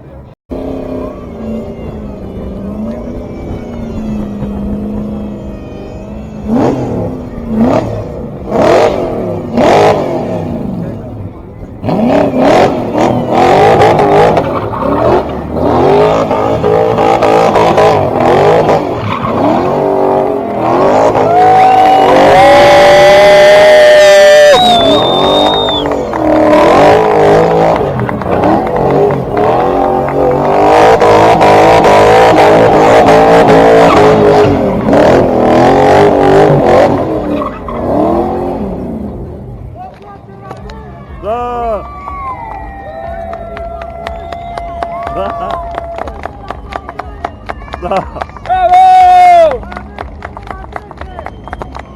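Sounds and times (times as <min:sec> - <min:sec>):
car engine revving: 0:00.0 - 0:42.0
tyres squealing: 0:10.7 - 0:36.4.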